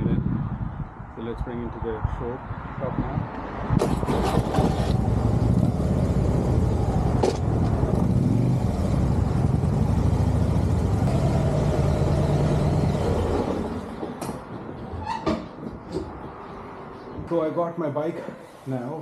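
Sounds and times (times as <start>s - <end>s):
motorcycle engine running: 4.1s - 13.8s.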